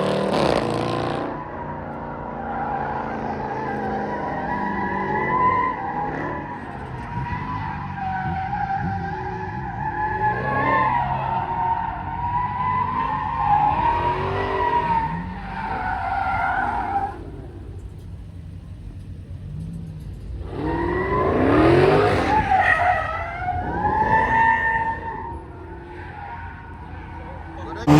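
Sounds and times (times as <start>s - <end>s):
tires squealing: 0.0s - 27.9s
car engine running: 27.6s - 27.9s.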